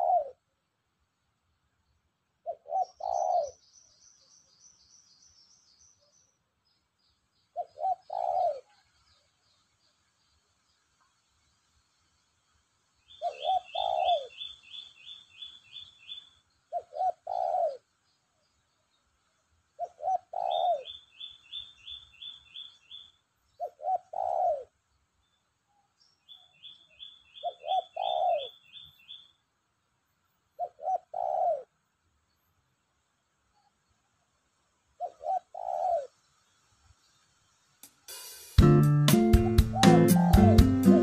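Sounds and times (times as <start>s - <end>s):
dove cooing: 0.0s - 0.4s, 2.4s - 3.6s, 7.6s - 8.9s, 13.2s - 14.8s, 15.7s - 17.9s, 19.8s - 21.0s, 23.6s - 24.7s, 27.4s - 28.7s, 30.6s - 31.8s, 35.0s - 36.2s, 39.2s - 41.0s
small bird high chirps: 13.0s - 18.9s, 19.8s - 24.6s, 25.2s - 29.4s.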